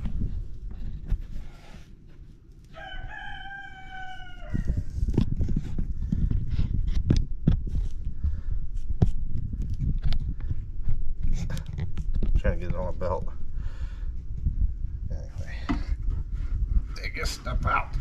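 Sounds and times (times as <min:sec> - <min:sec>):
rooster crowing: 0:02.7 - 0:04.9.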